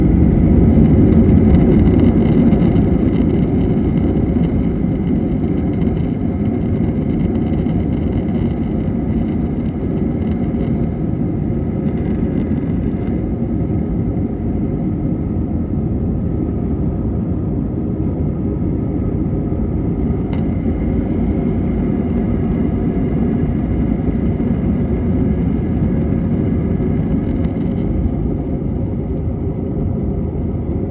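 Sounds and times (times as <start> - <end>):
faint engine whine: 0.0 - 30.9
jet engines rumbling: 0.0 - 30.9.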